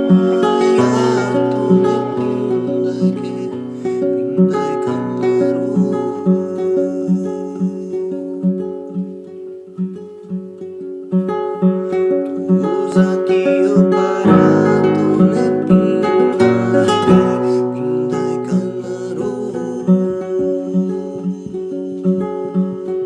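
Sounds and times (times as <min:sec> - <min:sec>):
acoustic guitar music: 0:00.0 - 0:23.0.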